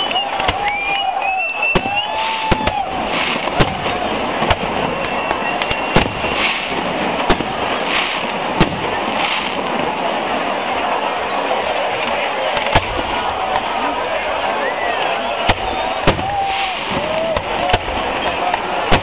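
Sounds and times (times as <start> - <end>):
firework whistle: 0.0 - 8.4, 14.7 - 19.0
fireworks banging: 0.0 - 19.0.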